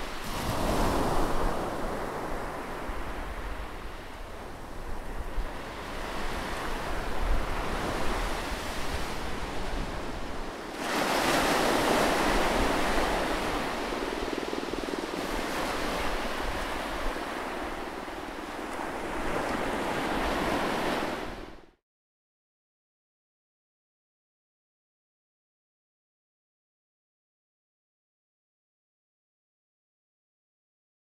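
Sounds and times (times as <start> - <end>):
ocean waves washing: 0.0 - 21.7.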